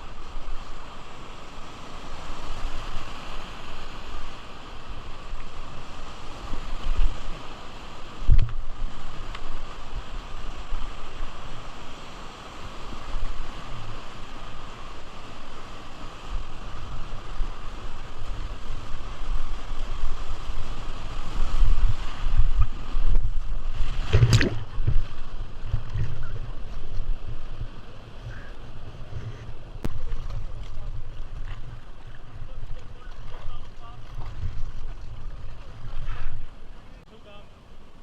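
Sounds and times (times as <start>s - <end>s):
river water rushing: 0.0s - 38.0s
wind buffeting microphone: 16.2s - 37.0s.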